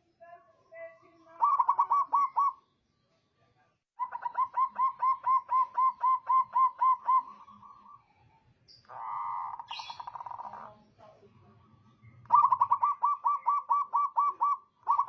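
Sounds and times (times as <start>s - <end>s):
dove cooing: 1.3s - 2.6s, 4.0s - 8.0s, 8.9s - 10.8s, 12.2s - 15.0s.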